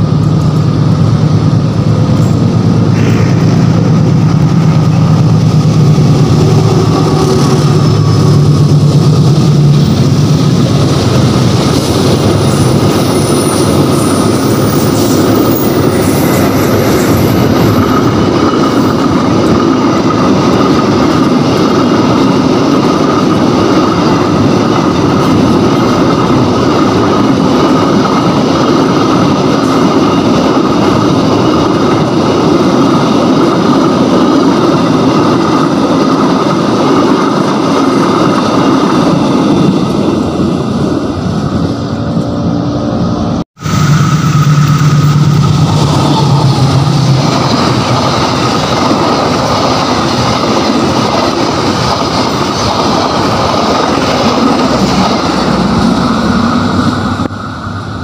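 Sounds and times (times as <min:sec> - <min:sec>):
diesel locomotive engine hum: 0:00.0 - 0:58.0
train wheels rumbling on rails: 0:00.0 - 0:58.0
high wheel squeal: 0:05.9 - 0:10.0, 0:11.6 - 0:19.0, 0:43.6 - 0:50.3.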